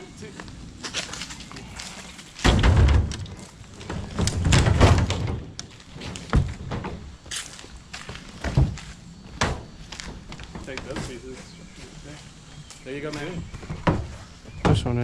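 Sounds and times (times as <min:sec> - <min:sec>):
heavy load landing thud: 0:02.4 - 0:05.5
rumbling thump: 0:02.4 - 0:05.6.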